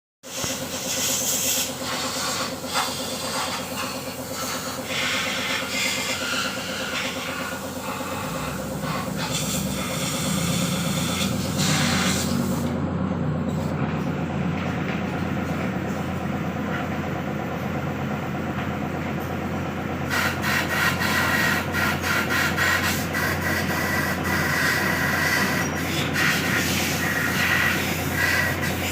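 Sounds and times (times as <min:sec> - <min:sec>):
low mechanical hum: 0:00.3 - 0:28.9.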